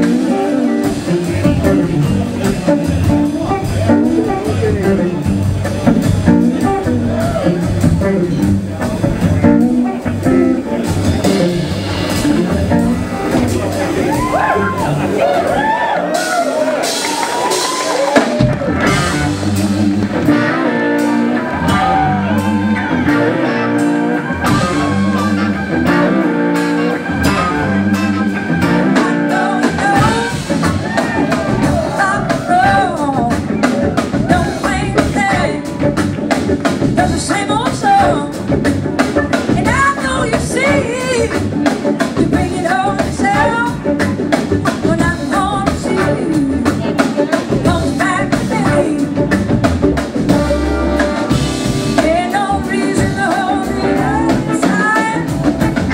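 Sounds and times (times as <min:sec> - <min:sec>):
bass guitar: 0:00.0 - 0:55.9
drum kit: 0:00.0 - 0:55.9
electric guitar: 0:00.0 - 0:55.9
person singing: 0:20.3 - 0:36.1, 0:36.7 - 0:49.5, 0:52.0 - 0:55.9.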